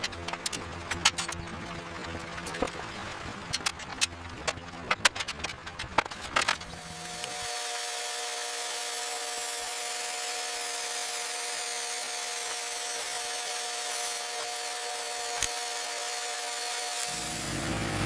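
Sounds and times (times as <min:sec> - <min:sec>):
power tool hissing: 0:06.8 - 0:18.0.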